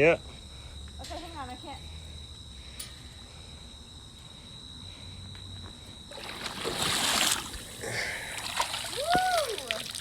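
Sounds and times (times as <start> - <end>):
crickets trilling: 0.0 - 10.0
water splashing: 6.1 - 10.0.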